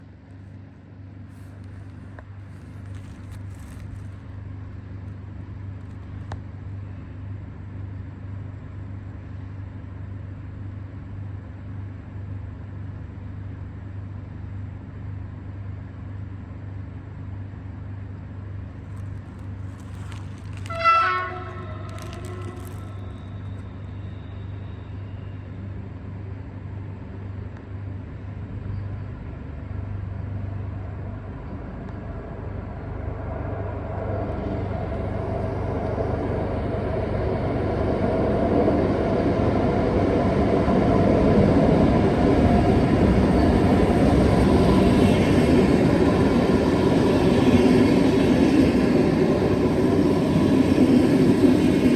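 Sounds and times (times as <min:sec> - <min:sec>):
train rumbling: 0:00.0 - 0:51.9
loud train horn blast: 0:20.6 - 0:23.4.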